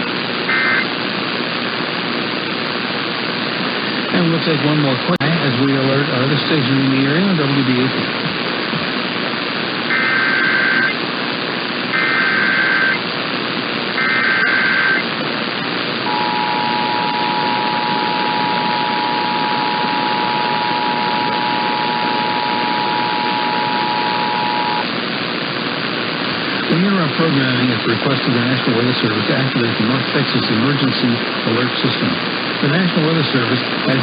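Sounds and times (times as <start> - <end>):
radio hiss: 0.0 - 34.0
digital data bursts: 0.5 - 0.9, 9.9 - 11.0, 11.9 - 13.1, 13.9 - 15.1
two-tone attention signal: 0.5 - 0.9, 14.0 - 15.0, 16.1 - 24.8.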